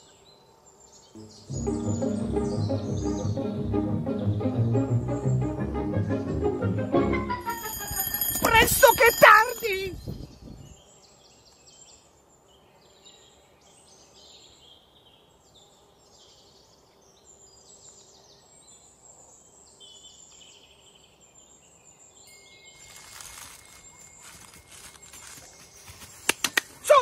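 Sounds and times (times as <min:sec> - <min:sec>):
low outdoor hiss: 0:00.0 - 0:02.7, 0:10.7 - 0:27.0
songbirds chirping and singing: 0:00.0 - 0:06.3, 0:08.9 - 0:27.0
music: 0:01.2 - 0:08.1.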